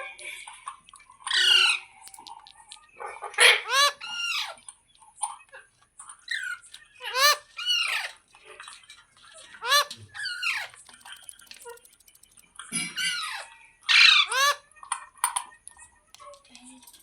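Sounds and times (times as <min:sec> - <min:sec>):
parrot screeching: 0:01.3 - 0:01.9, 0:03.3 - 0:04.6, 0:06.3 - 0:08.2, 0:09.6 - 0:11.8, 0:12.9 - 0:14.6.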